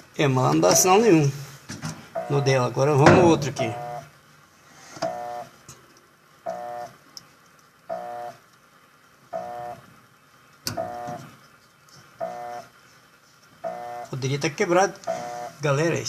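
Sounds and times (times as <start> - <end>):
washing machine buzzer beeping: 2.2 - 2.7, 3.5 - 4.1, 5.0 - 5.5, 6.5 - 7.0, 7.9 - 8.4, 9.3 - 9.9, 10.7 - 11.3, 12.2 - 12.7, 13.6 - 14.2, 15.1 - 15.6.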